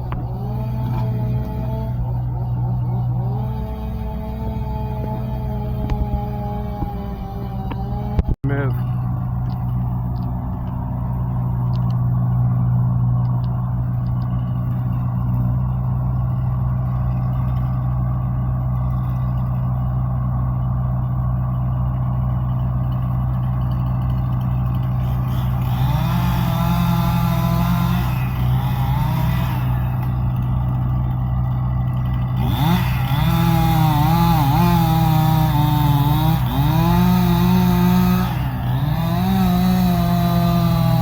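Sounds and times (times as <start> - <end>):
engine running: 0.0 - 41.0.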